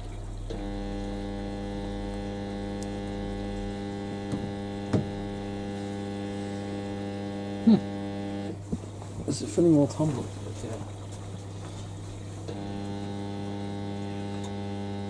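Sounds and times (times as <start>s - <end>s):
water inlet valve humming: 0.0s - 15.0s
short knocks: 4.3s - 5.2s.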